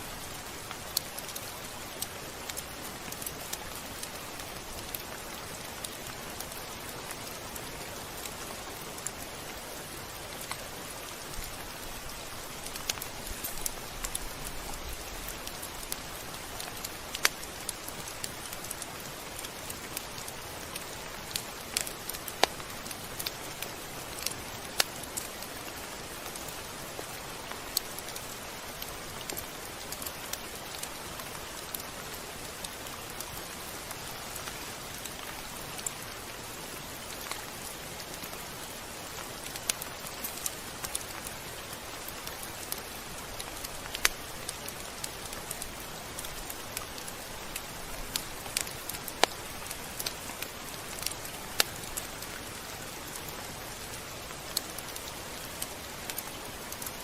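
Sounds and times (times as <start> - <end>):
steady rain falling: 0.0 - 57.0
drip ticks and pops: 15.4 - 25.5, 39.4 - 57.0.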